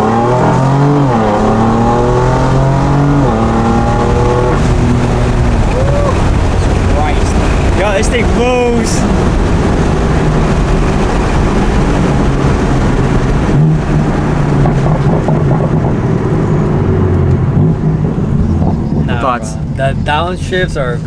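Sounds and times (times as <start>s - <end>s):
car engine under load: 0.0s - 21.0s.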